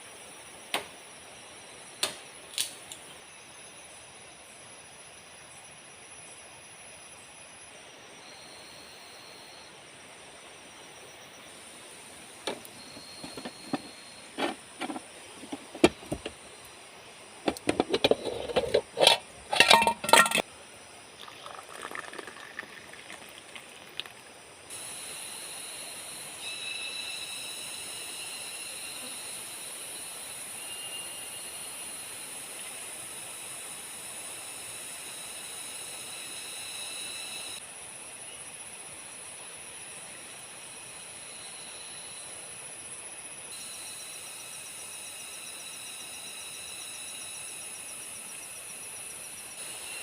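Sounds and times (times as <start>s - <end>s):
insects calling high-pitched: 0.0s - 50.0s
sharp knocks and clatter: 17.5s - 20.4s.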